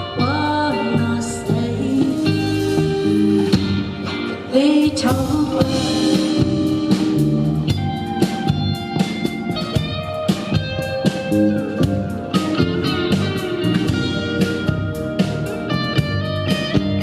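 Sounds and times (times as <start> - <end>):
bass: 0.0 - 17.0
guitar melody: 0.0 - 17.0
steady drum beat: 5.0 - 17.0.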